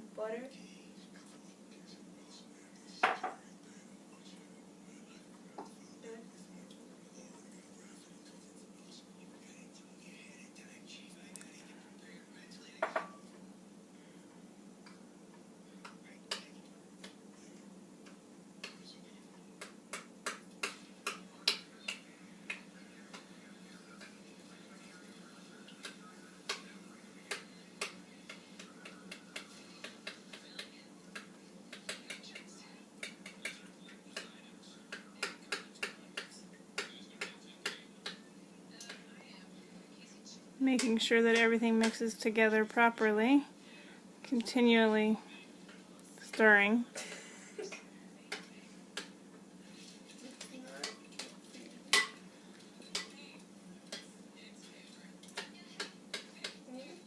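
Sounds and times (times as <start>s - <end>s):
faint steady hum: 0.0s - 57.0s
utensil tapping against bowl: 12.8s - 13.2s, 19.6s - 23.3s, 27.3s - 34.3s, 34.9s - 38.2s, 55.3s - 56.6s
utensil clinking on bowl: 50.8s - 52.2s.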